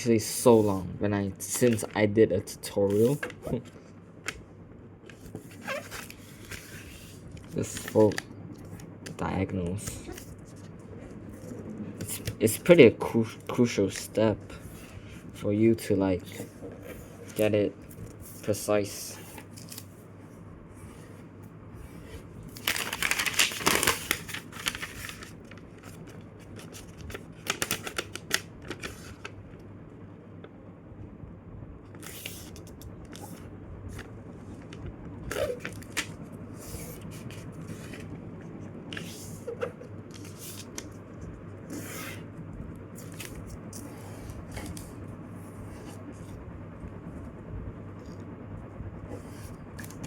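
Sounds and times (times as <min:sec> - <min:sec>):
paper folding and creasing: 0:05.1 - 0:08.9, 0:22.5 - 0:29.3, 0:32.0 - 0:42.3.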